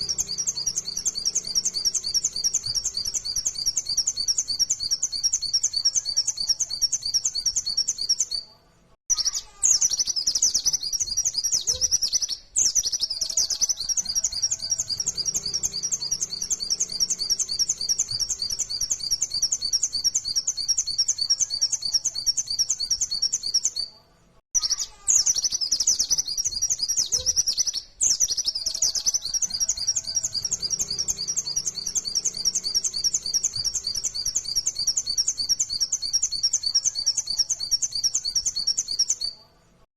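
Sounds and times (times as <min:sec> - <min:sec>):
bird singing rapid high chirps: 0:00.0 - 0:08.5, 0:09.1 - 0:23.9, 0:24.6 - 0:39.4.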